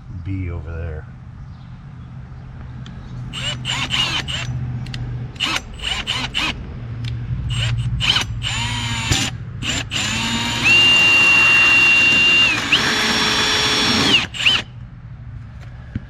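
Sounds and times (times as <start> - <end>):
power drill whine: 3.3 - 4.5, 5.4 - 6.6, 7.5 - 14.7.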